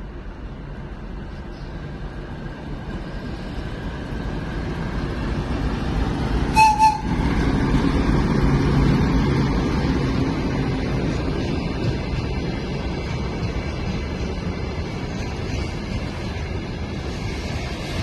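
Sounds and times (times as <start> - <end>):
diesel locomotive engine rumble: 0.0 - 18.0
locomotive horn toots: 6.5 - 7.1.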